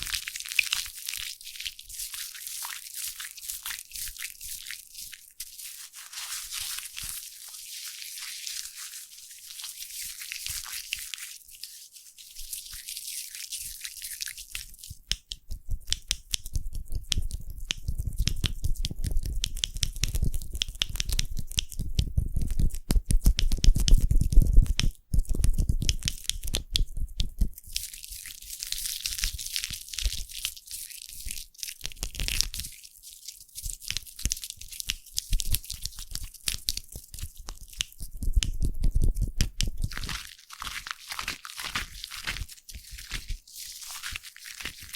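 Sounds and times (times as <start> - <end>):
foam bubbles crackling: 39.7 - 44.9.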